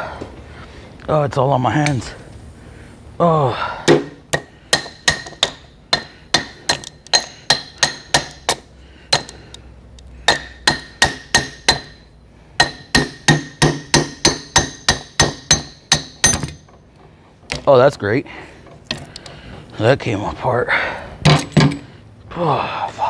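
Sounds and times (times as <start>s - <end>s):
hammer striking metal: 3.9s - 9.4s, 10.3s - 12.0s, 12.6s - 16.7s.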